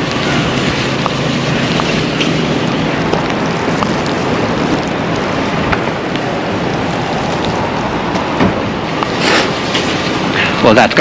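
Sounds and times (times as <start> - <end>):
rushing blizzard wind: 0.0 - 11.0.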